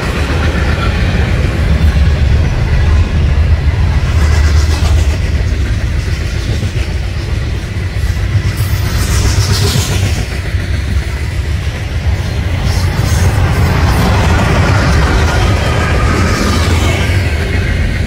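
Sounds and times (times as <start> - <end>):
train wheels rumbling on rails: 0.0 - 18.0
hiss: 7.6 - 11.0.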